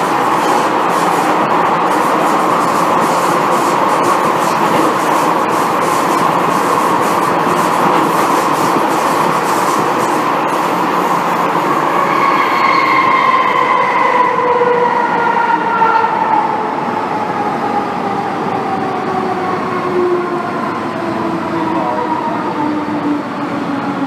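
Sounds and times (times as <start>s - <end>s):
train brakes howling: 0.0s - 17.3s
train running rumble: 0.0s - 24.0s.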